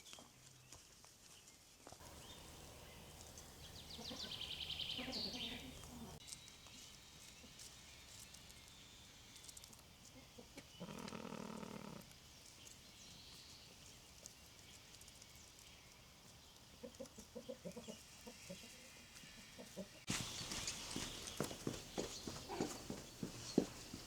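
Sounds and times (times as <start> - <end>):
faint birds chirping: 0.0 - 24.0
chickens clucking: 2.0 - 6.2, 10.0 - 12.1, 16.6 - 23.6
long held animal call: 10.8 - 12.0.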